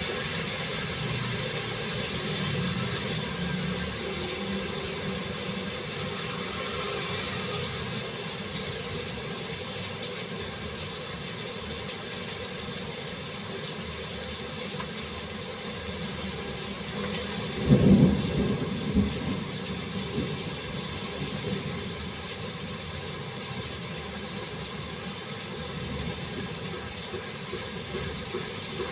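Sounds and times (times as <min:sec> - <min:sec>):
heavy rain falling: 0:00.0 - 0:28.9
thunder rumble: 0:17.6 - 0:21.7.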